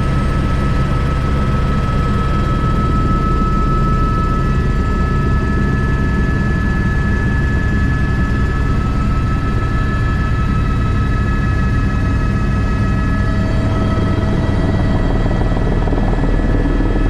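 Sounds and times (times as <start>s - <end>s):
helicopter rotor rumble: 0.0s - 17.0s
high turbine whine: 0.0s - 17.0s.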